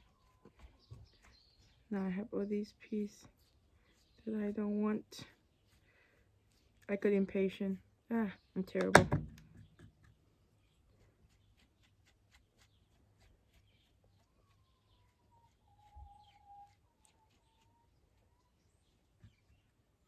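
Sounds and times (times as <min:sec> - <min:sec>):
bird calling faintly: 0:09.6 - 0:19.8.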